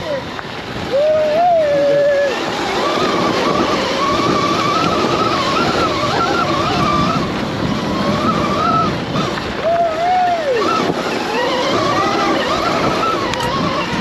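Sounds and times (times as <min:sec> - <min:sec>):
electric motorcycle motor whine: 0:00.0 - 0:14.0
tyres on loose dirt: 0:00.0 - 0:14.0
wind rushing: 0:00.0 - 0:14.0.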